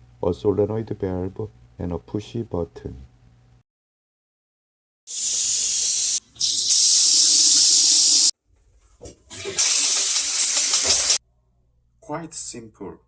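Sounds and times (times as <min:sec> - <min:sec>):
high-pressure water jets hissing: 0:05.1 - 0:08.3, 0:09.4 - 0:11.2.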